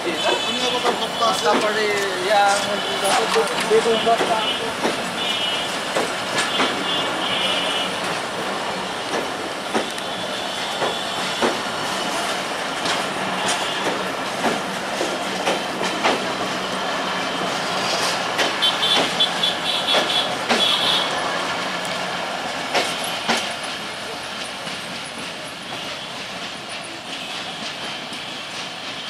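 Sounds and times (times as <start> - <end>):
train wheels rumbling on track: 0.0 - 29.0
wheels clicking over rail joints: 0.3 - 7.2, 21.7 - 29.0.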